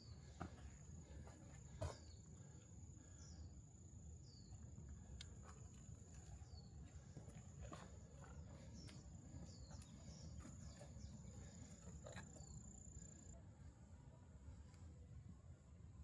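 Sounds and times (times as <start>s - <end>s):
soft footsteps: 4.6s - 13.2s.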